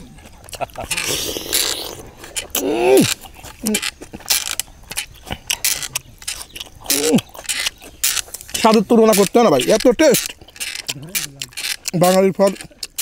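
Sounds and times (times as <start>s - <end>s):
wet chewing and mouth clicks: 0.0s - 13.0s
person humming mmm: 0.9s - 3.9s.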